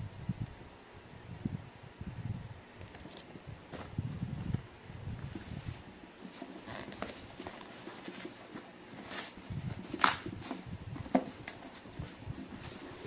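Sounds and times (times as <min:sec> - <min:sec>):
light packaging rustling: 0:05.3 - 0:13.0.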